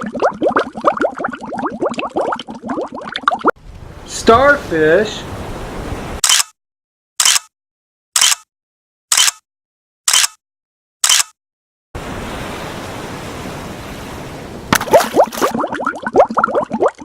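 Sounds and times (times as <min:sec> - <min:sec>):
sea surf rushing: 0:03.7 - 0:06.2, 0:12.0 - 0:15.6.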